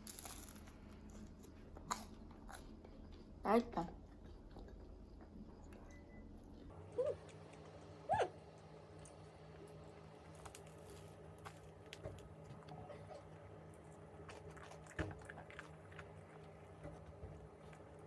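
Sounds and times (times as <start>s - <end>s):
person chewing and biting bread: 13.7s - 16.8s.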